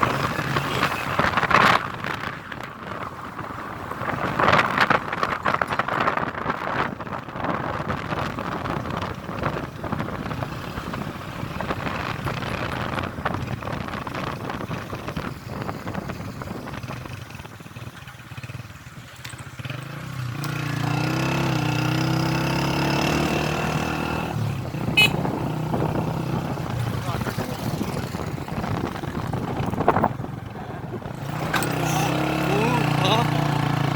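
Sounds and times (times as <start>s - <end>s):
wind noise: 0.0s - 18.0s, 21.1s - 33.9s
road noise: 0.0s - 33.9s
vehicle engine running: 26.7s - 33.9s.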